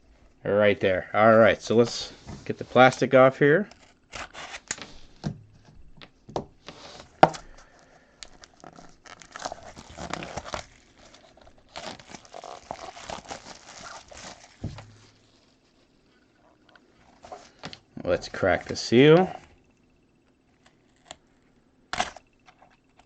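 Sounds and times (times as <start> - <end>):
shrink-wrap plastic tearing: 3.7 - 5.0, 8.2 - 15.2.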